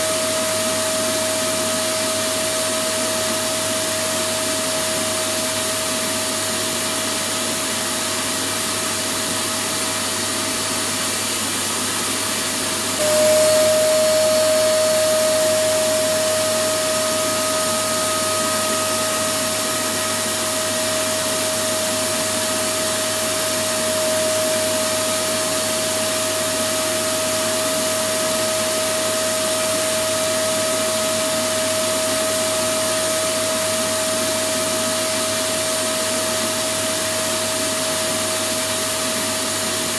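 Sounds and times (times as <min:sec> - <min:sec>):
vacuum cleaner motor: 0:00.0 - 0:39.9.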